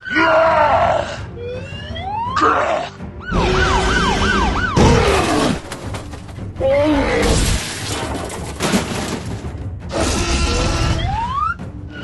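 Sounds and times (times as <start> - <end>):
warbling siren-like wail: 0.0 - 5.6, 10.4 - 12.0.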